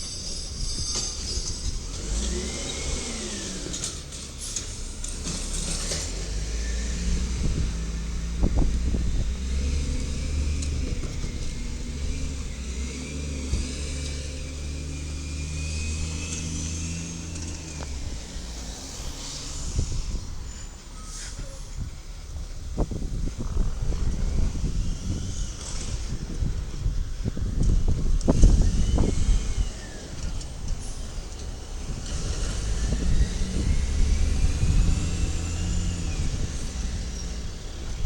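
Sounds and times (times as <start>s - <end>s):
garbage truck engine running: 0.0s - 38.0s
high whine: 13.5s - 26.2s.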